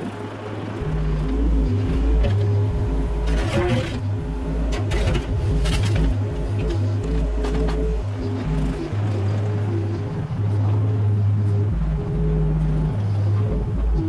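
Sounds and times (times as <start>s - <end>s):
excavator diesel engine running: 0.8s - 10.1s
scraping and rattling: 2.1s - 8.0s.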